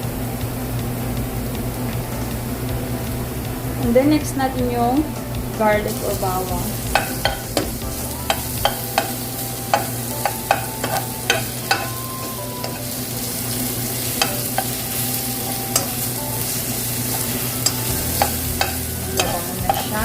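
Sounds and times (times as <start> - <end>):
garlic sizzling in oil: 0.0 - 20.0
utensil tapping and scraping pan: 6.8 - 12.9, 13.9 - 16.0, 17.1 - 20.0.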